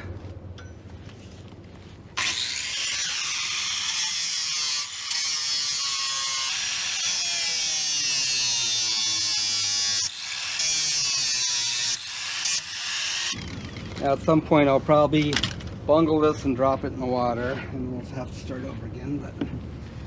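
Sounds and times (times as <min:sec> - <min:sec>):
electric grinder on metal: 0:02.2 - 0:14.2.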